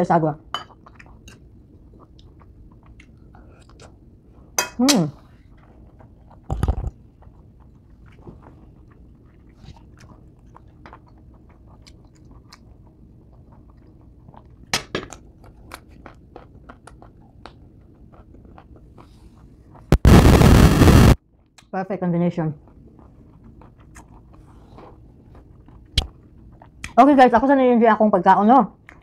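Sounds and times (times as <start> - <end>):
chewing crisp mango: 0.8 - 4.1, 5.4 - 19.9, 22.6 - 27.1.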